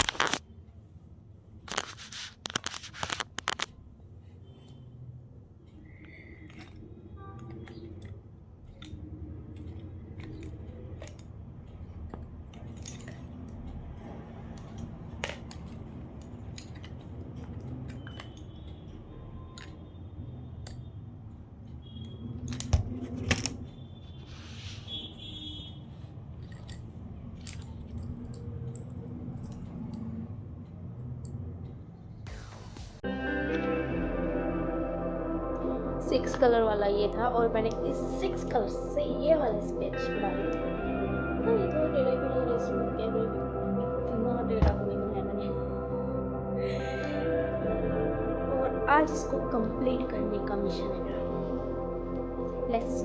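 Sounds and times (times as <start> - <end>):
drawing colours clicking and rattling: 1.7 - 3.8, 5.9 - 20.0, 26.4 - 30.1
steady low hum: 25.2 - 53.0.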